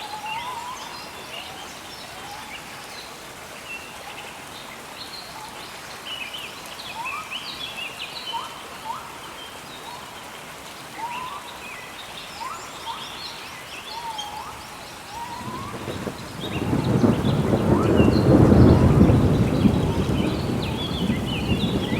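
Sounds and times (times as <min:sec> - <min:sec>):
birds whistling and chirping: 0:13.9 - 0:21.9
rain hissing: 0:14.3 - 0:21.9.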